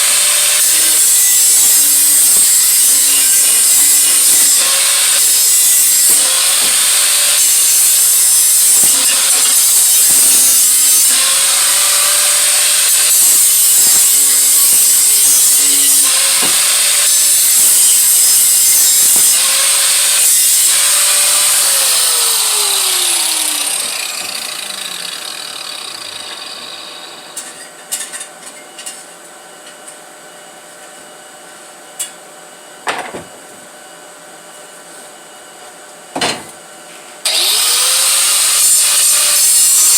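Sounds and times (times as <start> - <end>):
power tool grinding steel pipe: 0.0 - 27.6, 37.3 - 39.9.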